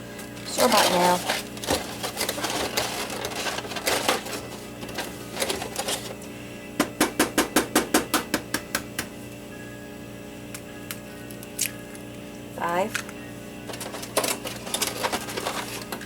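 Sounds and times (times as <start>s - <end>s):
rustling: 0.5s - 6.1s, 13.7s - 16.0s.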